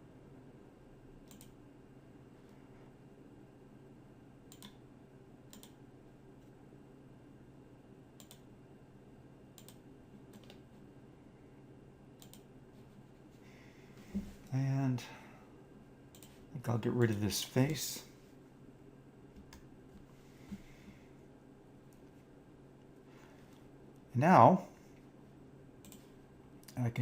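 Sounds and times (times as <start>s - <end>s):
faint steady hum: 0.0s - 27.0s
computer mouse clicks: 1.2s - 1.6s, 4.5s - 4.8s, 5.5s - 5.8s, 8.2s - 8.5s, 9.6s - 10.7s, 12.2s - 12.5s, 16.1s - 16.4s, 25.8s - 26.8s.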